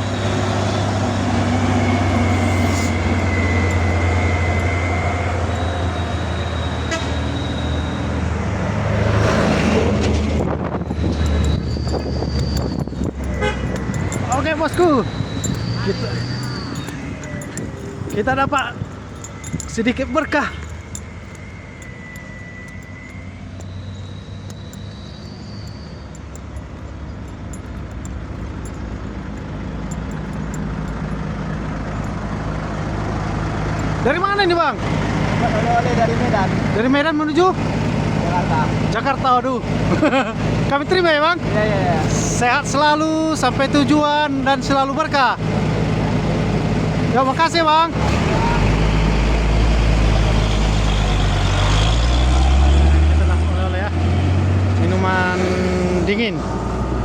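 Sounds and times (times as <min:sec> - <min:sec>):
thin high tone: 0:00.0 - 0:08.4, 0:10.9 - 0:29.0
heavy truck engine droning: 0:00.0 - 0:57.0
road traffic: 0:00.0 - 0:57.0.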